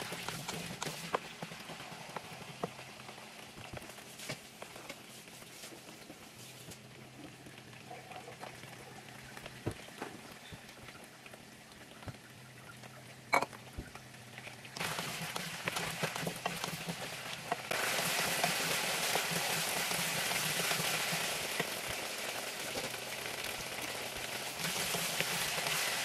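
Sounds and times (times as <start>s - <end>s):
vegetables sizzling in oil: 13.2s - 26.0s.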